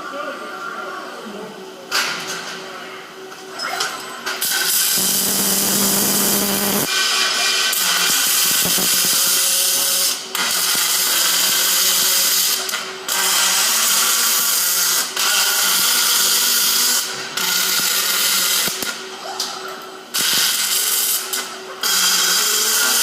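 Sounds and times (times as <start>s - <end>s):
welding arc crackling: 4.4s - 19.0s, 20.1s - 23.0s.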